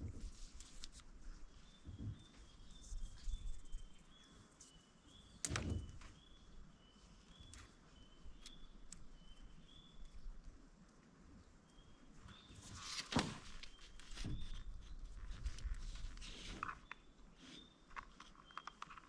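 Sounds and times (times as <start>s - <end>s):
small bird chirping: 1.5s - 10.3s, 13.6s - 19.0s.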